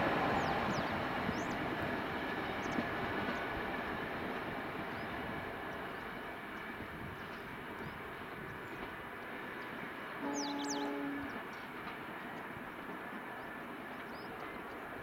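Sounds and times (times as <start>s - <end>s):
passenger train rumbling: 0.0s - 15.0s
birds chirping: 9.6s - 11.7s
train horn: 10.2s - 11.4s.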